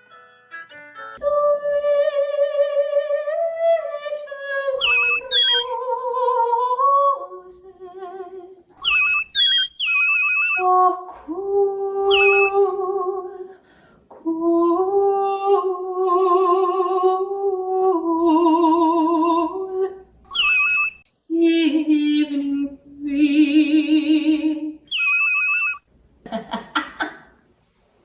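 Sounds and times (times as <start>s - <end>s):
woman singing wordless notes: 1.2s - 8.6s, 10.6s - 13.6s, 14.2s - 20.0s
high falling chirps: 4.8s - 5.7s, 8.8s - 10.7s, 12.1s - 12.6s, 20.3s - 21.0s, 24.9s - 25.8s.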